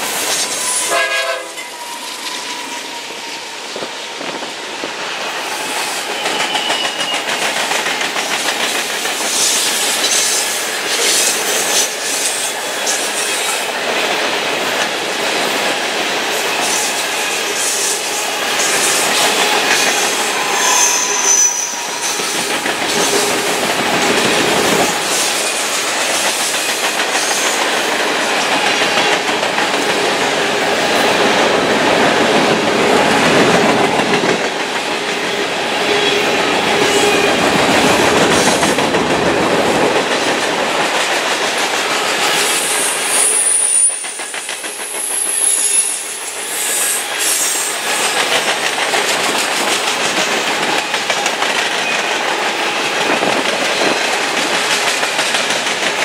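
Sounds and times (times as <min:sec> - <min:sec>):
freight train rolling past: 0:00.0 - 0:56.0
thin high wheel squeals: 0:00.4 - 0:01.0, 0:01.6 - 0:03.7, 0:06.1 - 0:07.2, 0:19.8 - 0:22.4, 0:44.8 - 0:47.7.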